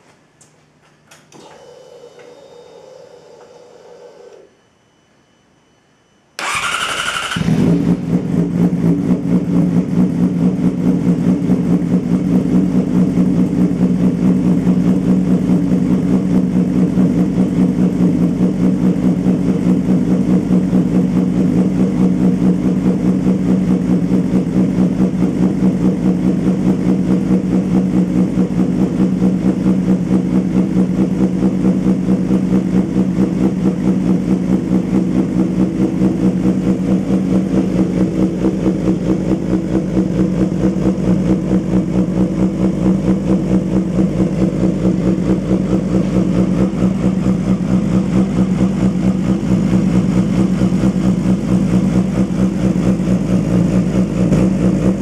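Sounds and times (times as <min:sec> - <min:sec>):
motorcycle starter cranking: 0:06.4 - 0:08.0
motorcycle engine idling: 0:06.4 - 0:55.0.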